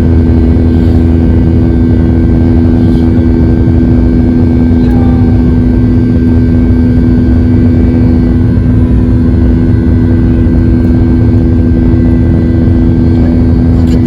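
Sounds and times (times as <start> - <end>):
aircraft cabin drone: 0.0 - 14.0.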